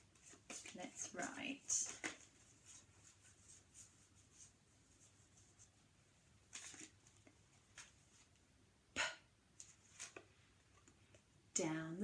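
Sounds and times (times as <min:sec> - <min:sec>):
paper rustle: 0:00.0 - 0:05.8, 0:06.4 - 0:08.4, 0:09.6 - 0:11.0.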